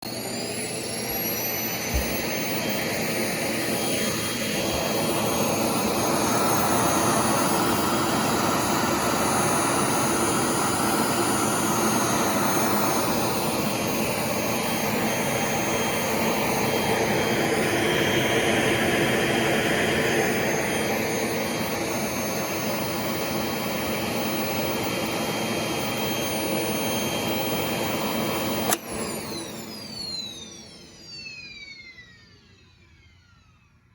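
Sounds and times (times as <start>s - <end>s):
vacuum cleaner motor whining: 0.0s - 33.9s
switch click: 28.6s - 29.0s.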